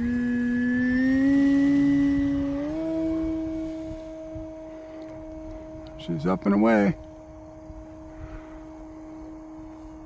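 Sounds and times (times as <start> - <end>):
model plane motor whining: 0.0 - 10.0.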